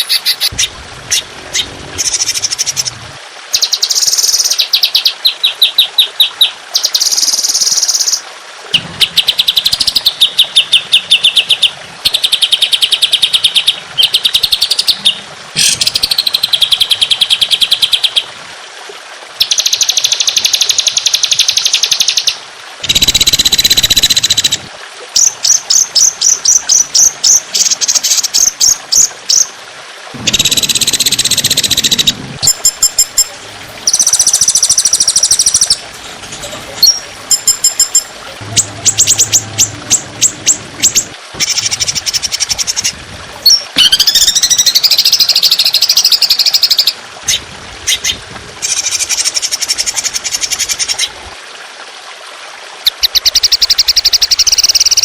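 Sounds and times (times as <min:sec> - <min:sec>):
harsh raspy bird bursts: 0:30.2 - 0:42.9
songbird high-pitched trills: 0:30.3 - 0:47.0.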